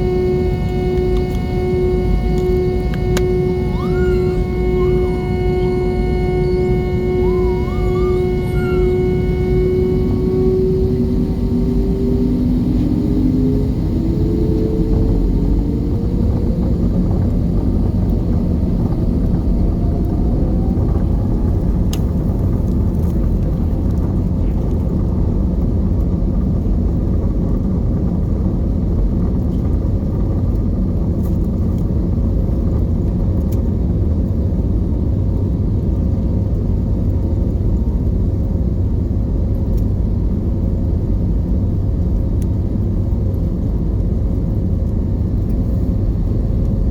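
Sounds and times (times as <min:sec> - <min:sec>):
rising tone: 0:00.0 - 0:17.0
aircraft cabin engine rumble: 0:00.0 - 0:46.9.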